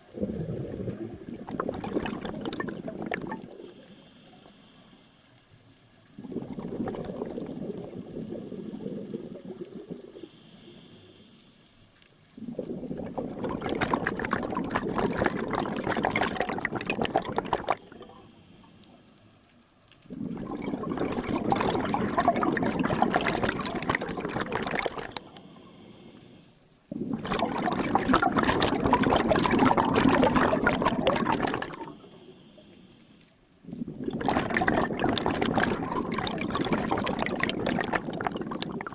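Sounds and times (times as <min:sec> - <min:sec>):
bubbling exhaled air underwater: 0:00.0 - 0:04.5, 0:05.9 - 0:11.1, 0:12.3 - 0:18.4, 0:20.0 - 0:25.7, 0:26.9 - 0:32.3, 0:33.6 - 0:38.9
diver inhaling with faint hiss: 0:03.5 - 0:05.4, 0:10.1 - 0:11.9, 0:17.8 - 0:19.5, 0:25.0 - 0:26.8, 0:31.7 - 0:33.6.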